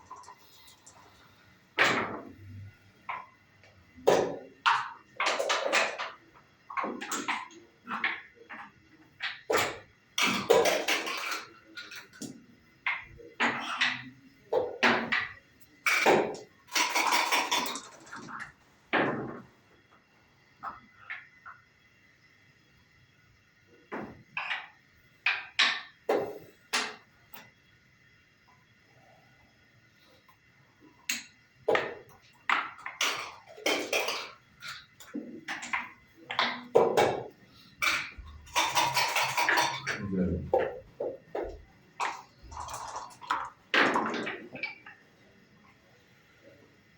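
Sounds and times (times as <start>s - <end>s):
checkers and dice clacking on wood: 4.0s - 19.4s, 31.1s - 44.9s.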